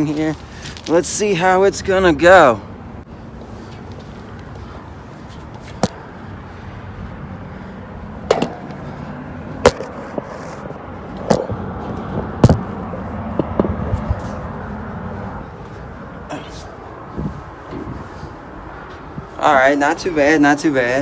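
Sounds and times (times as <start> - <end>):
hands and shoes clanking on metal steps: 8.2 - 14.3, 17.2 - 18.1.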